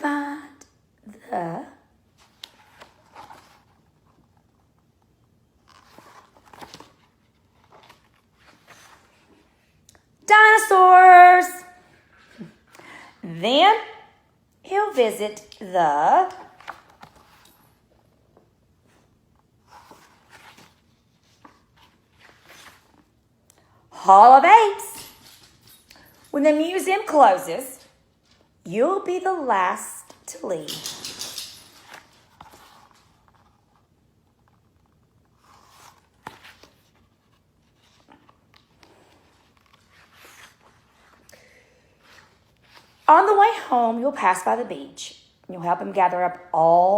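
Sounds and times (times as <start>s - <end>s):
book page turning: 2.2s - 9.9s, 16.3s - 23.2s, 31.8s - 41.3s, 42.0s - 43.1s
paper rustling: 5.5s - 9.8s, 16.3s - 23.2s, 30.5s - 41.3s.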